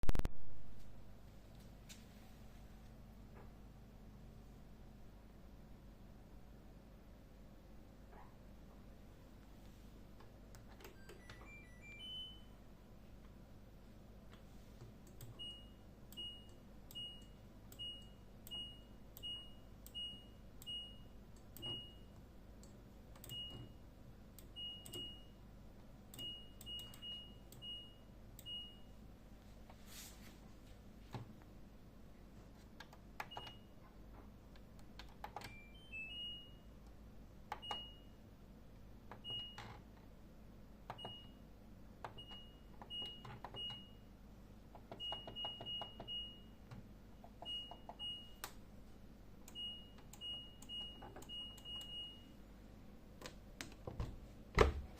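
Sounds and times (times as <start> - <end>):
short high beeps: 11.0 - 12.6.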